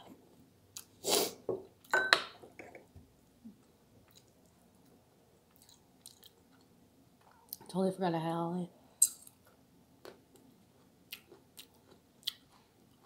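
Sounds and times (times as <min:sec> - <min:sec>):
person chewing: 0:05.5 - 0:06.7, 0:09.0 - 0:13.0.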